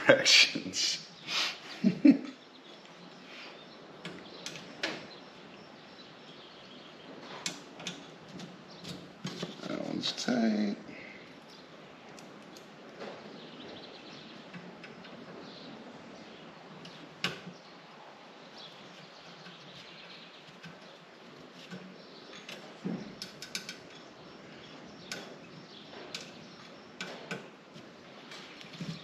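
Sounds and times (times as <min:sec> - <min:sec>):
faint steady hiss: 0:00.0 - 0:29.0
metal parts clicking and clinking: 0:20.5 - 0:24.2.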